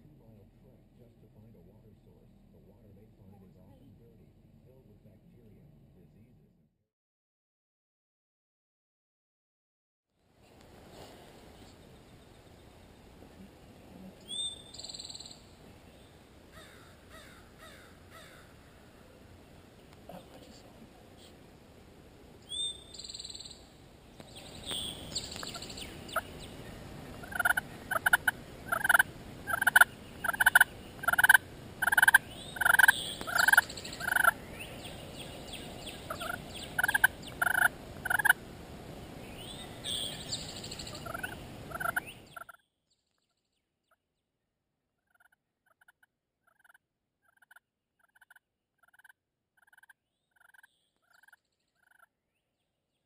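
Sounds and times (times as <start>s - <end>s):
steady outdoor hiss: 0.0s - 6.6s, 10.2s - 42.5s
small birds chirping: 10.4s - 21.4s, 22.2s - 44.1s, 45.0s - 53.0s
turkey yelping: 27.2s - 34.4s, 35.9s - 38.4s, 39.8s - 42.6s, 46.5s - 52.1s.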